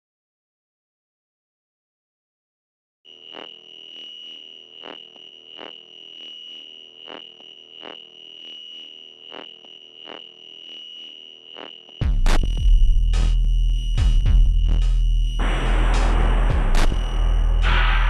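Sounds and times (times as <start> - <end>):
deep bass and heavy beat: 12.0 - 18.0
electronic music: 12.0 - 18.0.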